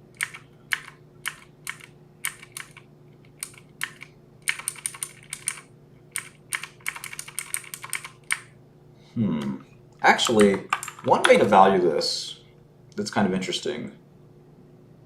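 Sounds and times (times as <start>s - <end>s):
faint hum: 0.0s - 15.0s
typing on computer keyboard: 0.2s - 8.5s, 10.2s - 11.5s.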